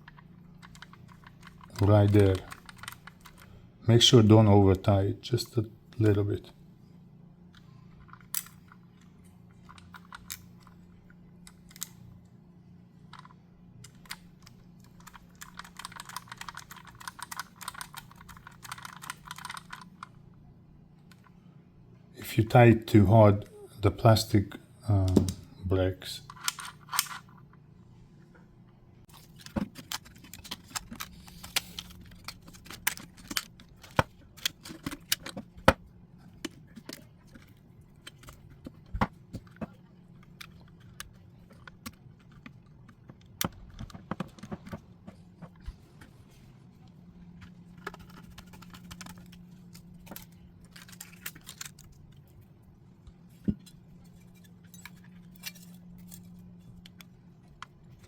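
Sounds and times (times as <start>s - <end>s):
small lock parts clicking: 0.0s - 3.5s, 8.0s - 12.0s, 13.1s - 20.2s, 26.3s - 27.4s, 29.1s - 44.8s, 47.7s - 52.4s, 53.6s - 58.0s.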